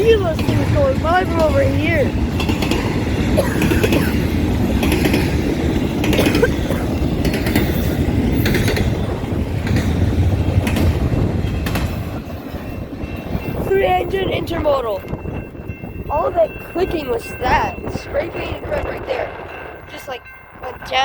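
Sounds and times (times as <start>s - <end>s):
wheels clicking over track: 0.0s - 15.5s
train wheels rumbling on rail: 0.0s - 21.0s.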